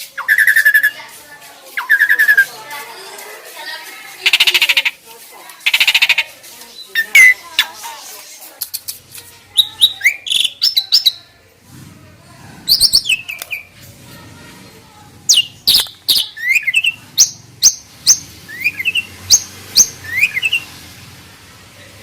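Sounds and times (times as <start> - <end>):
starlings calling: 0.0 - 1.0, 1.7 - 2.5, 4.2 - 5.0, 5.6 - 7.8, 12.7 - 13.8, 15.3 - 20.9.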